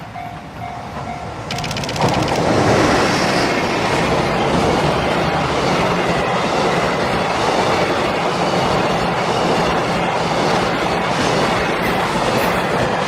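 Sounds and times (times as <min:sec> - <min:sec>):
train wheels rushing on rails: 0:00.0 - 0:13.0.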